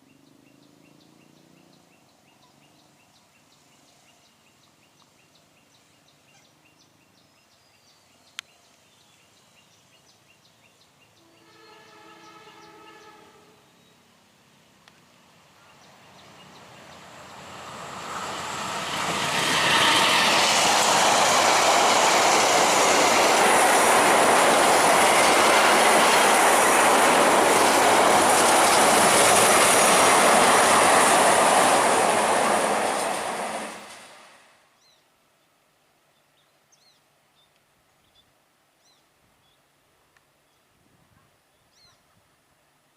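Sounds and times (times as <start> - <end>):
train wheels rumbling on rails: 16.1 - 34.4.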